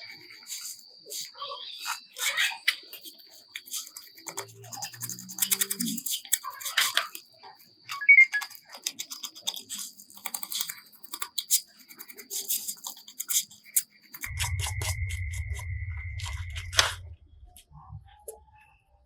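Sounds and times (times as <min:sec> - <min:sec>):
scratching and clicking on phone: 0:00.0 - 0:17.1
faint high whine: 0:14.0 - 0:19.0.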